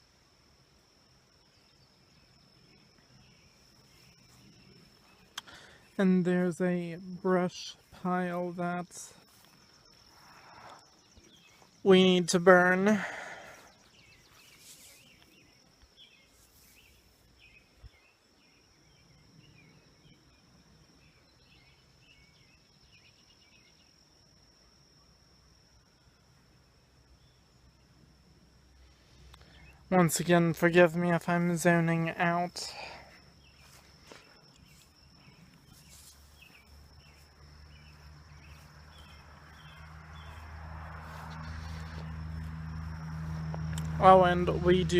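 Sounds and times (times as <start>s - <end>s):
bird chirping: 1.3s - 24.0s, 29.1s - 44.9s
small bird chirping: 33.2s - 44.9s.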